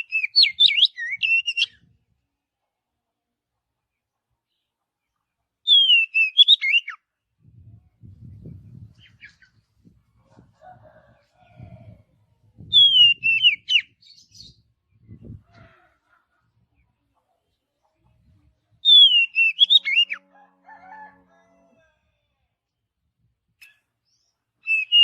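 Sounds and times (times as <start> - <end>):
bird singing whistled phrases: 0.0 - 1.8, 5.7 - 7.0, 12.7 - 14.5, 18.8 - 20.2, 24.6 - 25.0.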